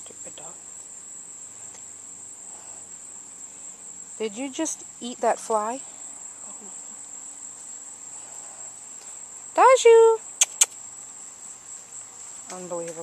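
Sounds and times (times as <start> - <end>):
insects trilling: 0.0 - 13.0
sharp clicks: 10.4 - 10.8.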